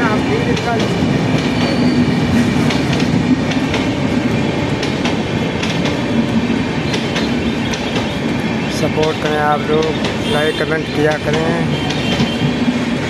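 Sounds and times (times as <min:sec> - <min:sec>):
train coaches rumbling: 0:00.0 - 0:13.0
wheels clacking over rail joints: 0:00.0 - 0:13.0.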